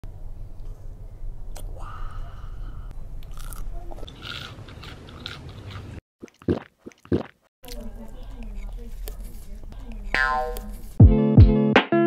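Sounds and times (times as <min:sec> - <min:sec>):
crunchy food being chewed: 0:03.2 - 0:10.9.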